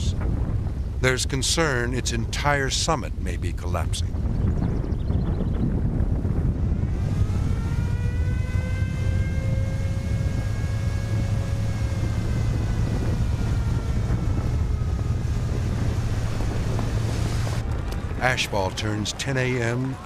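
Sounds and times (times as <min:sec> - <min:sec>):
volcano rumbling: 0:00.0 - 0:20.0
pitched engine-like drone: 0:06.0 - 0:20.0.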